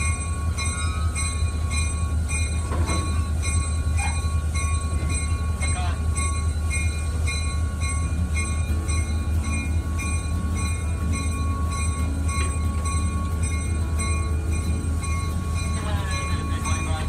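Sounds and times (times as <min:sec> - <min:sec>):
ringing tone: 0:00.0 - 0:17.0
train engine rumble: 0:00.0 - 0:17.0.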